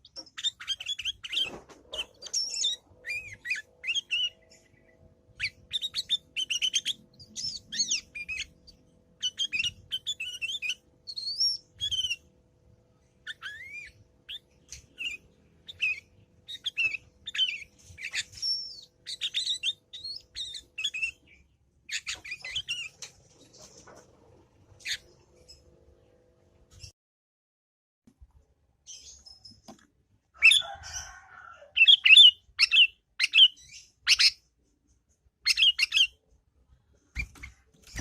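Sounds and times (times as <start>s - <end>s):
bulbul chirping and whistling: 0.0s - 12.3s, 13.2s - 22.9s, 31.8s - 34.4s, 35.4s - 36.2s.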